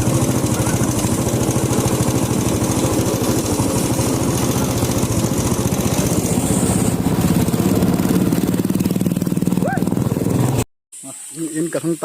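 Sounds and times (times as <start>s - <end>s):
vehicle engine running: 0.0s - 10.7s.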